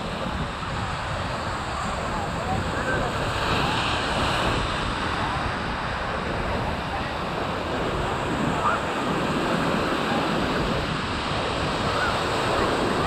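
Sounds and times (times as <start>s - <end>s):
faint voices: 0.0s - 13.0s
ocean surf rushing: 0.0s - 13.0s
wind buffeting microphone: 0.0s - 13.0s.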